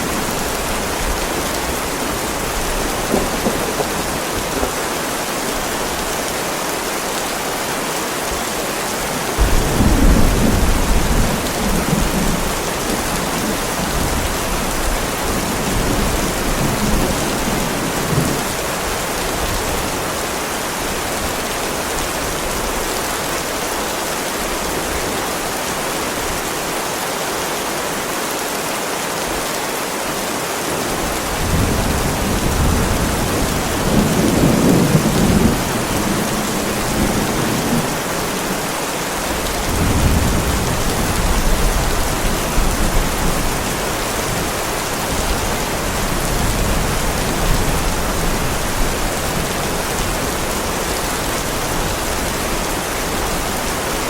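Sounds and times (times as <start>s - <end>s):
thunder rumbling: 0.0s - 4.8s, 9.4s - 18.6s, 31.2s - 50.2s
heavy rain on pavement: 0.0s - 54.0s.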